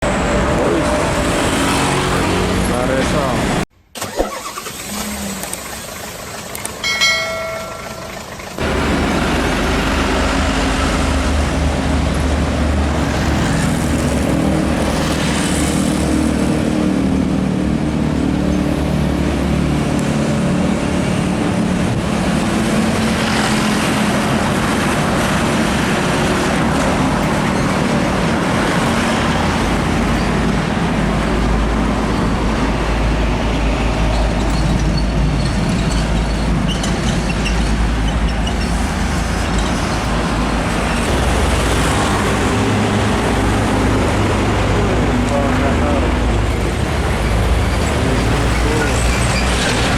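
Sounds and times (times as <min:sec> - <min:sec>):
heavy trucks driving past: 0:00.0 - 0:03.7, 0:05.0 - 0:49.9
road noise: 0:00.0 - 0:49.9.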